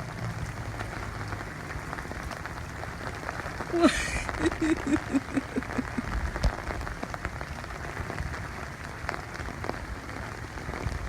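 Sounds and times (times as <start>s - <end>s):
heavy rain on an umbrella: 0.0s - 11.0s.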